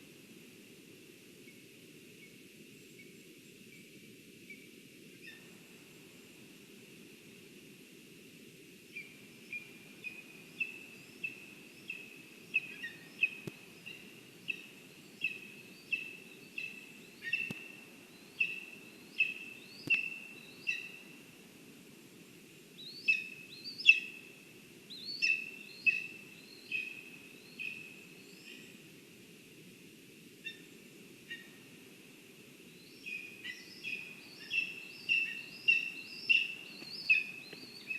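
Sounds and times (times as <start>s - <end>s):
woodpecker calling: 9.6s - 17.7s, 18.4s - 21.0s, 33.1s - 37.9s
faint clicks: 13.3s - 13.6s, 17.4s - 17.7s, 36.7s - 37.7s.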